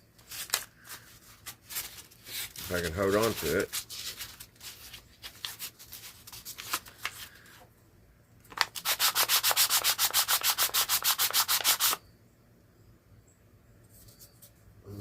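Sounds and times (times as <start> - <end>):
sandpaper rubbing on wood: 8.8 - 12.0.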